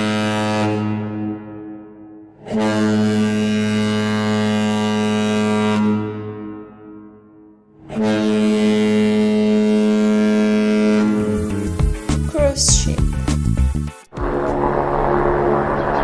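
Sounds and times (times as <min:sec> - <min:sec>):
ship's horn deep blasts: 0:00.0 - 0:11.5.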